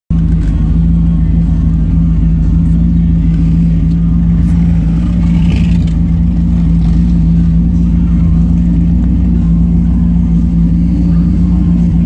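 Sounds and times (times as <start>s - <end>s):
car engine idling: 0.1s - 12.0s.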